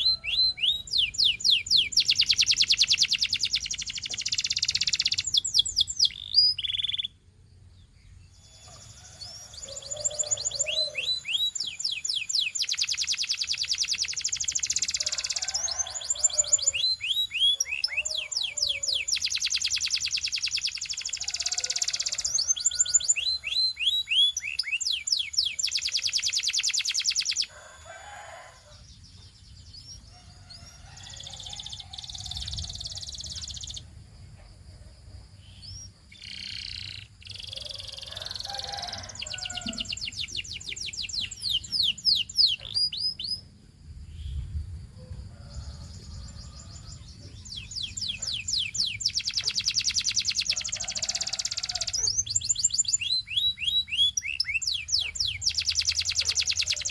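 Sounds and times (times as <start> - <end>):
canary singing: 0.0 - 7.2, 8.2 - 28.8, 29.9 - 33.8, 35.6 - 43.5, 46.0 - 56.9.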